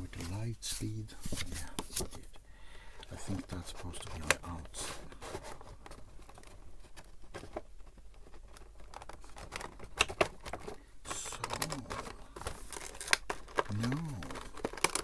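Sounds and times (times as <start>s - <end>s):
cardboard box and plastic insert clicking: 8.5s - 15.0s.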